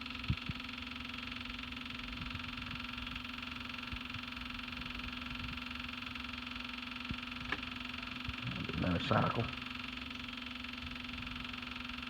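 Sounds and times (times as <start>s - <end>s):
tractor steady hum: 0.0s - 12.0s.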